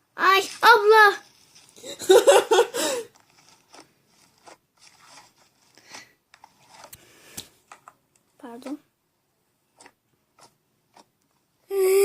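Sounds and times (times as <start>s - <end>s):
girl's high-pitched exclamation: 11.7s - 12.0s.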